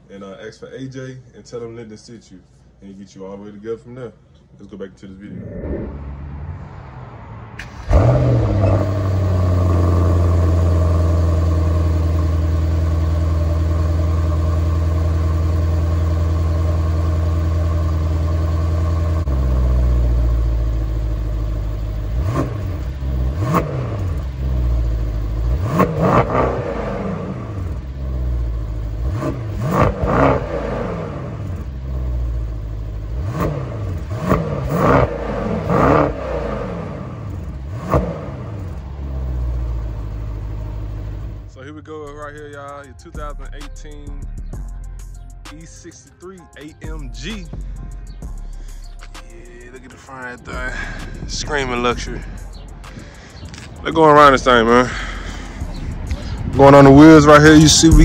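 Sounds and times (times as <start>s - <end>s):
car engine starting and idling: 5.3s - 45.8s, 46.8s - 58.0s
engine throttle blips: 50.5s - 58.0s.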